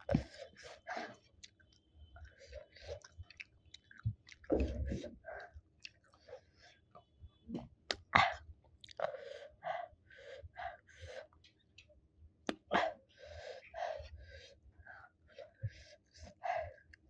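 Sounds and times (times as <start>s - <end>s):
person chewing with wet mouth smacks: 1.4s - 5.0s, 5.8s - 6.2s, 8.8s - 9.1s.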